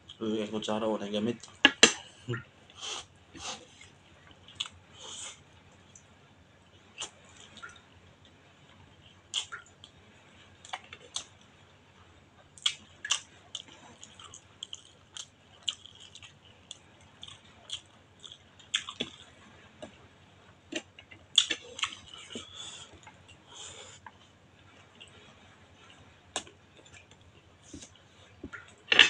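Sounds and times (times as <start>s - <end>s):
person chewing with mouth clicks: 12.6s - 19.3s.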